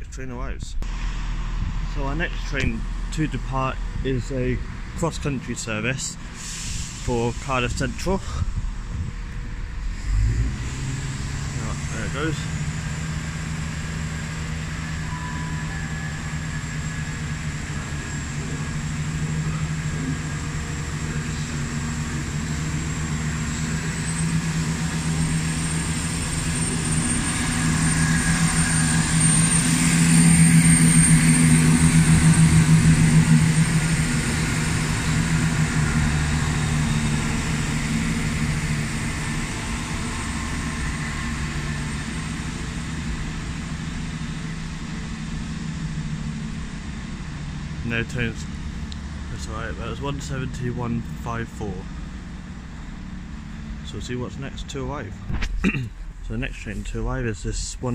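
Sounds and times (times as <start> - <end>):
diesel train engines running: 0.0 - 57.9
faint high whine: 14.0 - 57.9.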